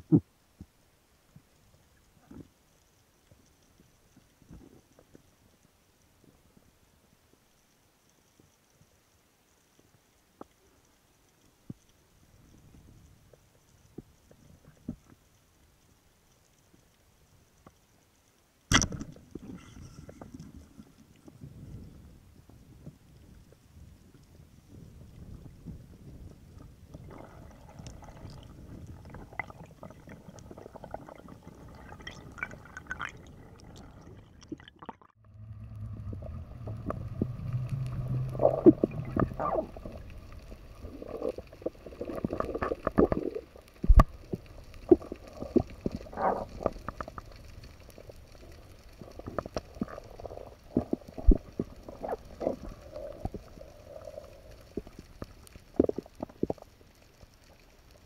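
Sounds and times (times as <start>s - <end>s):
water gurgling underwater: 18.7s - 57.6s
low hum: 35.2s - 41.8s.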